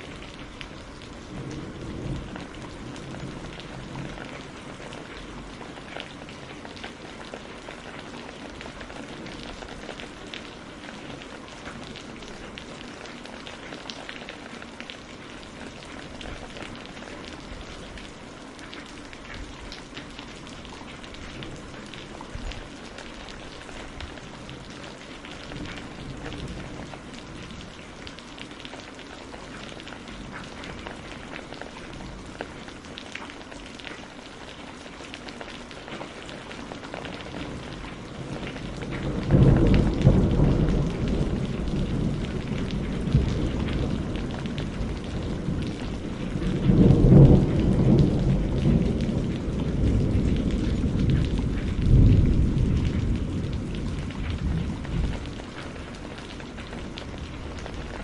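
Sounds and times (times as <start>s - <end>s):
rain on a greenhouse roof: 0.0s - 58.0s
thunder rolling: 38.5s - 55.9s.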